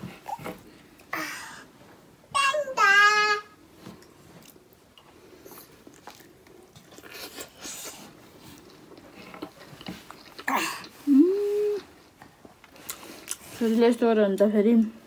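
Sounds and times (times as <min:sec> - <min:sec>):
person chewing food: 0:04.0 - 0:11.2, 0:11.8 - 0:13.5.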